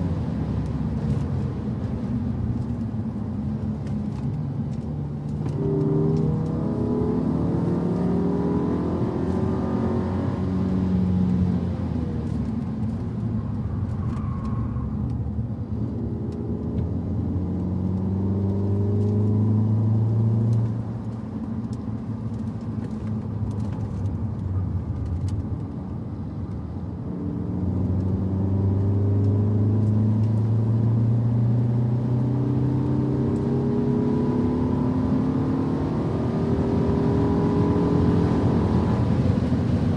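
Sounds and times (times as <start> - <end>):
car engine revving: 5.2 - 13.0, 15.7 - 21.2, 27.0 - 39.9.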